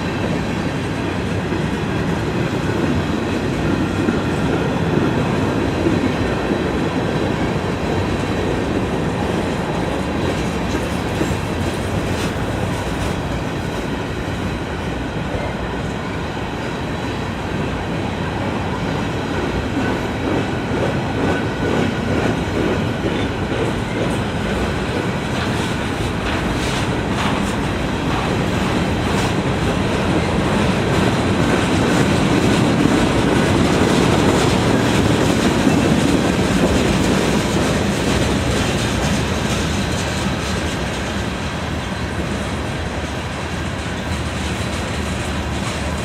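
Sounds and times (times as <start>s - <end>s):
train wheels rolling on rails: 0.0s - 46.0s.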